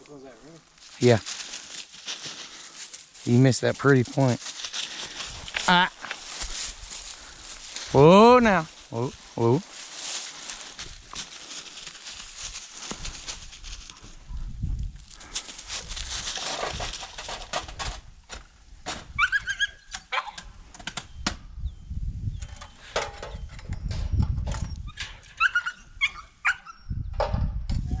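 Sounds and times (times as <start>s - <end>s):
rustling: 0.0s - 18.1s
dog whining: 19.2s - 20.4s, 24.9s - 26.8s.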